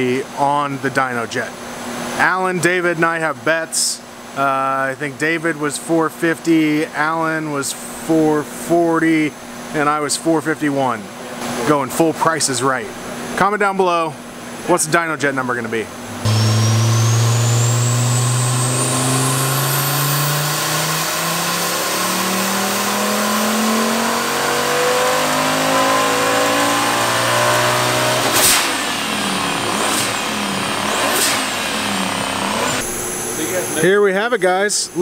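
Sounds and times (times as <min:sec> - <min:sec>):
engine revving at full throttle: 0:16.0 - 0:33.0
turbo whine: 0:16.0 - 0:33.9.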